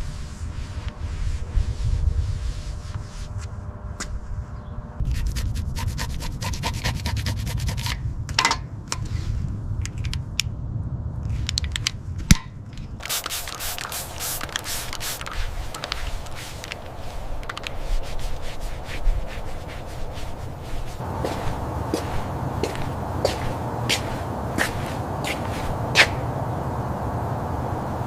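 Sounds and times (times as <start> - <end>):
sanding scraping strokes: 0.0 - 3.5, 5.0 - 7.9, 13.1 - 26.3
low rumble: 9.1 - 13.0, 14.1 - 28.0.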